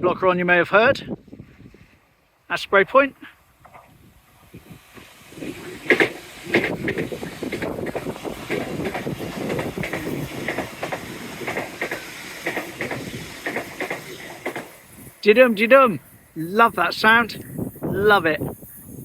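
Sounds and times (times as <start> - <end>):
train wheels clickety-clack: 4.8 - 15.1.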